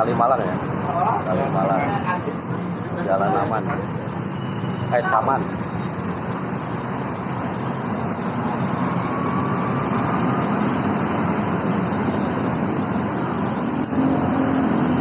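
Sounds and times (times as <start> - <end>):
passing vehicles rushing: 0.0 - 15.0
short sharp click: 13.8 - 14.0.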